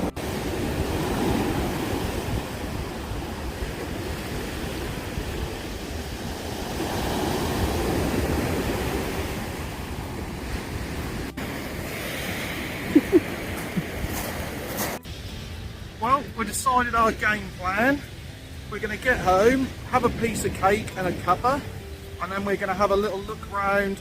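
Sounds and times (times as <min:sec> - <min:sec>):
sea waves breaking on beach: 0:00.0 - 0:15.3
wind rumbling on microphone: 0:00.0 - 0:16.0, 0:18.2 - 0:22.2.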